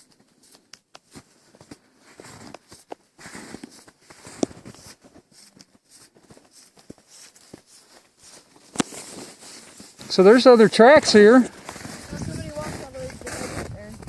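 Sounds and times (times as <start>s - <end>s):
footsteps crunching in snow: 0.0s - 14.0s.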